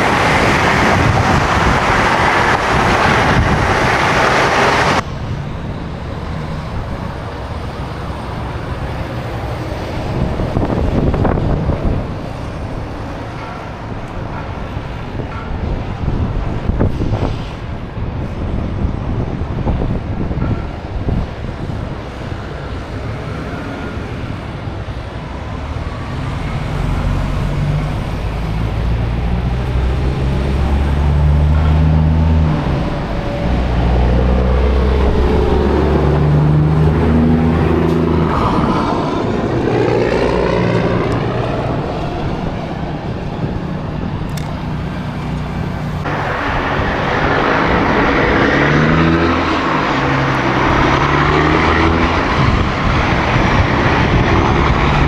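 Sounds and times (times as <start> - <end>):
diesel truck engine shifting gears: 0.0 - 5.0, 46.1 - 55.0
tyre and road noise: 0.0 - 5.1, 45.8 - 55.0
traffic passing: 0.0 - 15.0, 25.4 - 43.1, 45.9 - 55.0.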